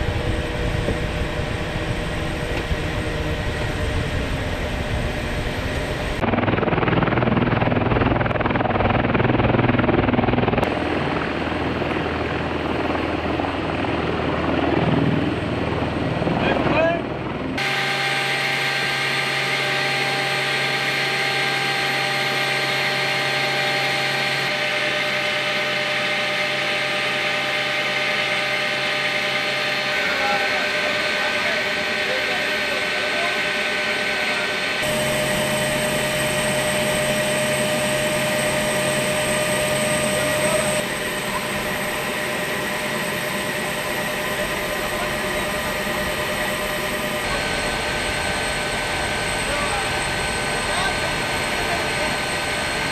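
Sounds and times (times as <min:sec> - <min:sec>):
aircraft turbine whine: 0:00.0 - 0:52.9
low hum: 0:17.0 - 0:52.9.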